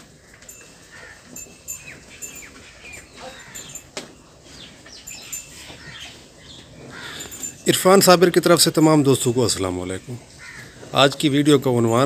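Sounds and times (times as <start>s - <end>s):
small birds chirping: 0.3s - 7.9s.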